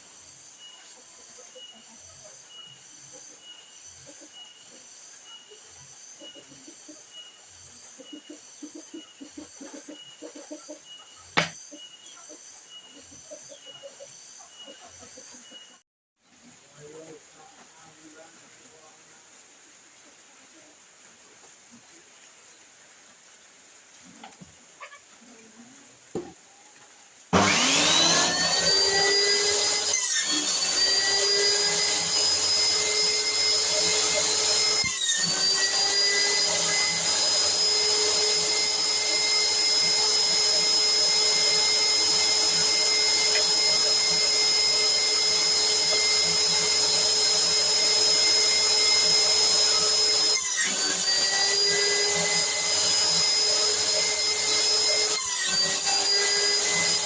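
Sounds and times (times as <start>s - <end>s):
electric motor whining: 27.3s - 57.0s.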